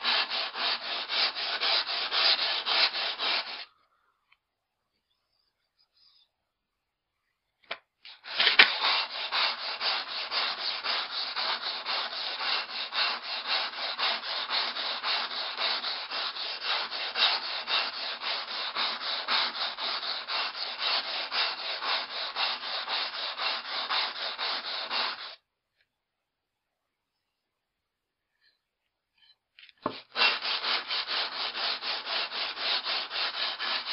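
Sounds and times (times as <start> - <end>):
axe rasping on sandpaper: 0.0 - 3.7, 8.2 - 25.4, 29.8 - 33.9.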